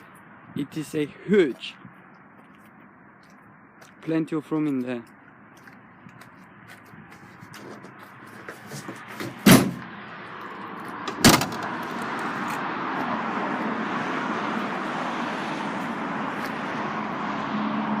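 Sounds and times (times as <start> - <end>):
vehicle doors slamming: 8.7 - 9.9, 11.1 - 11.7.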